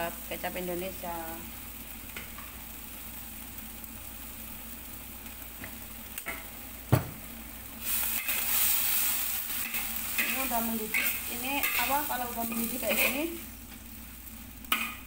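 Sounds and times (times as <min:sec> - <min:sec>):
vegetables sizzling in a wok: 0:00.0 - 0:15.0
metal spatula scraping: 0:07.9 - 0:13.4.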